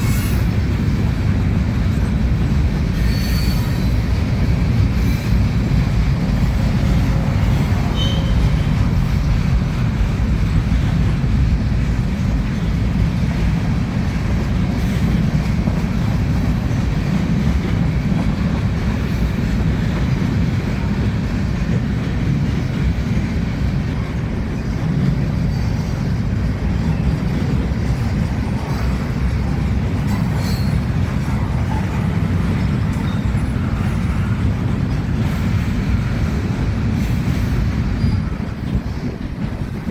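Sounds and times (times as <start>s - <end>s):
train wheels rumbling on rails: 0.0s - 39.9s
wheel squeals: 3.0s - 4.1s, 7.9s - 8.7s, 30.0s - 30.9s, 38.0s - 39.0s.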